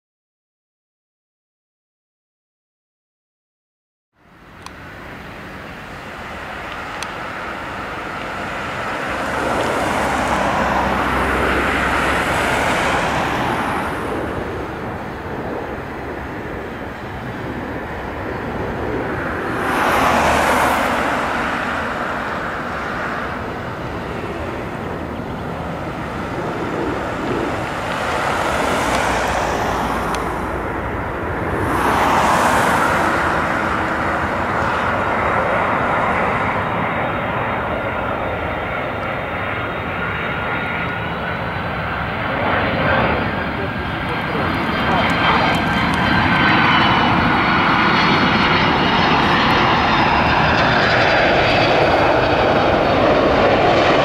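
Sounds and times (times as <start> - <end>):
vehicles passing by: 4.2 - 54.0.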